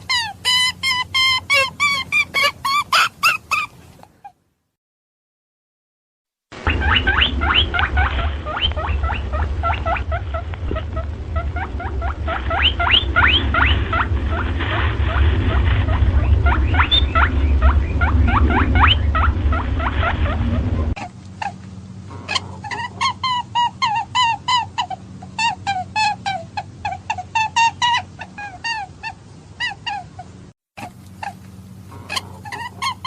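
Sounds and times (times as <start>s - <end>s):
animal squeaking: 0.0s - 4.4s, 6.6s - 33.0s
steady low hum: 6.6s - 33.0s.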